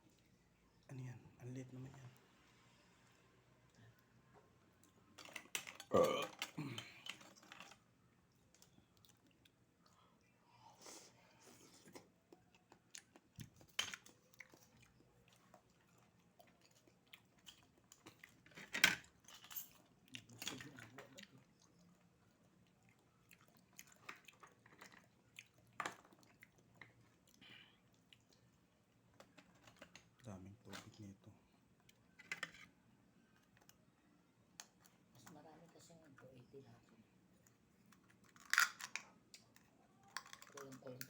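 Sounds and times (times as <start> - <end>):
person chewing: 8.5 - 10.0, 10.8 - 18.4, 21.0 - 28.6.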